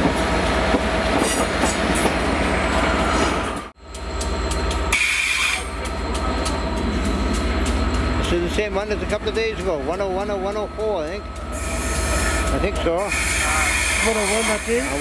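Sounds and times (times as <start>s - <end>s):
train drawing into platform: 0.0s - 15.0s
train wheels clicking over rail joints: 3.6s - 15.0s
high brake squeal: 4.9s - 5.8s.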